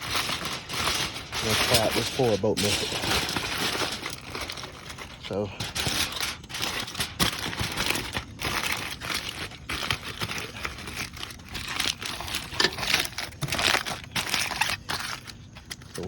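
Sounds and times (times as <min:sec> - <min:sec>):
aluminum foil crinkling: 0:00.0 - 0:16.0.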